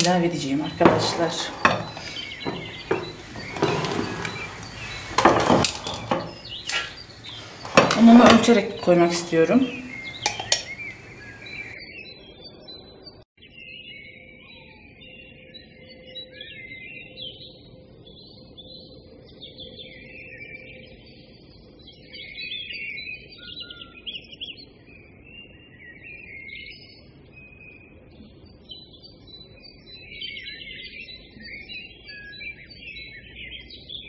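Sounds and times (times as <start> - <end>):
small birds twittering: 0.0 - 34.0.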